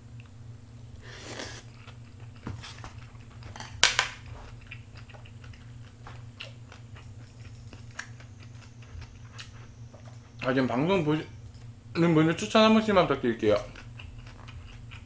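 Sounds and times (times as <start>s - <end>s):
steady low hum: 0.0s - 15.0s
wet chewing with crisp clicks: 1.6s - 10.5s, 13.5s - 15.0s.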